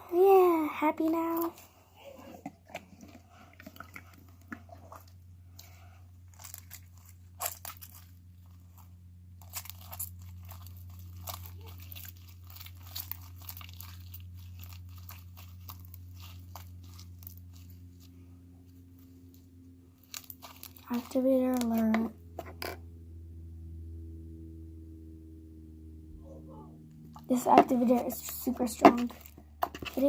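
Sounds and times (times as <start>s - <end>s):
steady low hum: 0.0s - 30.0s
slime squished by hand: 2.6s - 18.1s, 20.0s - 22.1s.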